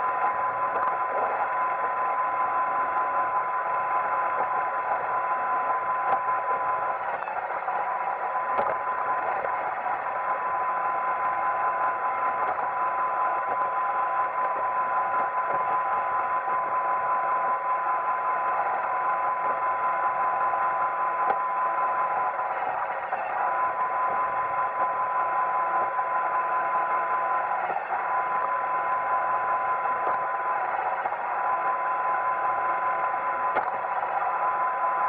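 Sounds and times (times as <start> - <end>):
robot vacuum whirring: 8.4 - 35.0.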